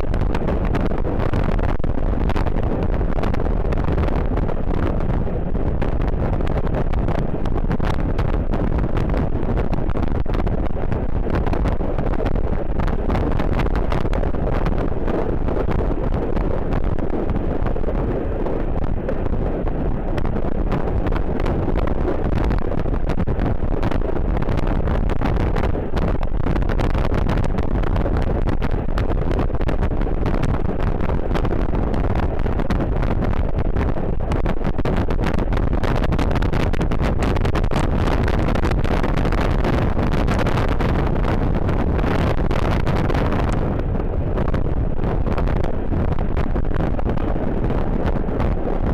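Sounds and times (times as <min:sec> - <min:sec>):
steady low rumble: 0:00.0 - 0:48.9
wind buffeting microphone: 0:00.0 - 0:48.9.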